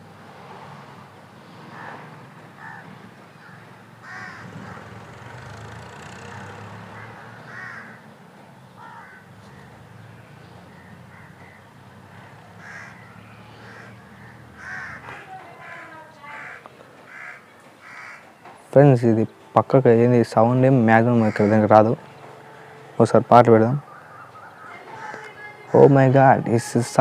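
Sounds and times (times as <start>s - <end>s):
crows cawing: 1.7s - 8.1s, 8.7s - 9.8s, 10.7s - 18.4s, 21.2s - 21.7s, 23.8s - 26.0s.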